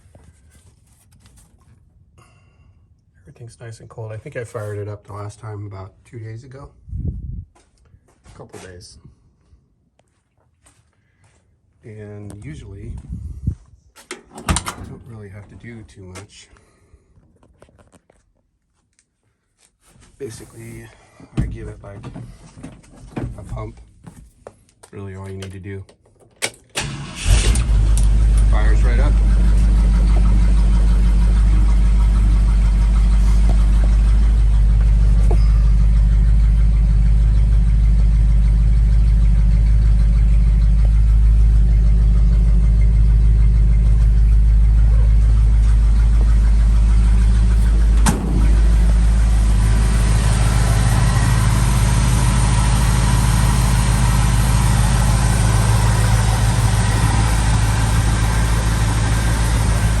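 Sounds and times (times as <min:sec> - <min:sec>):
truck engine idling: 0:26.8 - 1:00.0.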